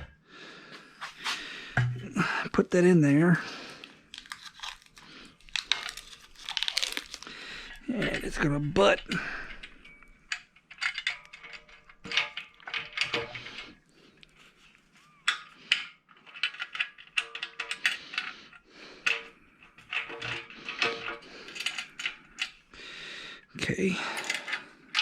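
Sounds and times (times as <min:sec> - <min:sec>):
metal parts clinking: 0:04.1 - 0:13.8, 0:15.1 - 0:22.6, 0:24.0 - 0:25.0.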